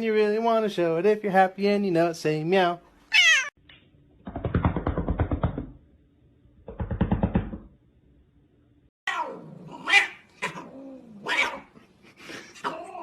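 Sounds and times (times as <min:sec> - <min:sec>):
angry cat yowling: 0:03.1 - 0:03.5, 0:09.1 - 0:11.7.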